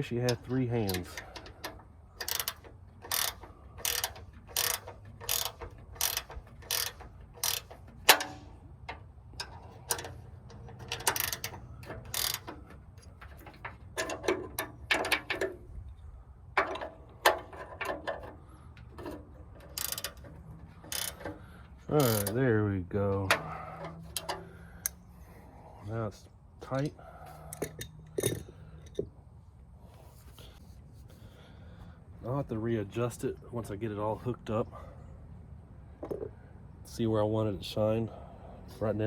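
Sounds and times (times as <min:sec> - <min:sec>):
ratchet wrench clicking: 0:00.3 - 0:15.5, 0:19.6 - 0:21.4, 0:22.0 - 0:22.4.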